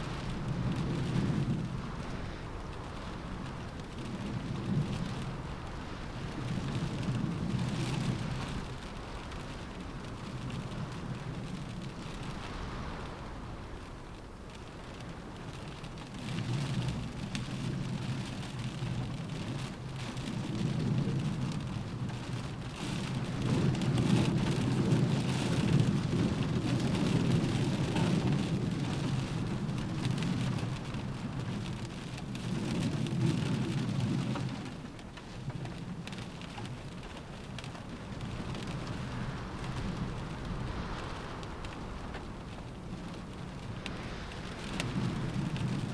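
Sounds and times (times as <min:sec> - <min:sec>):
gusting wind: 0:00.0 - 0:45.9
rain pattering on a window: 0:00.0 - 0:45.9.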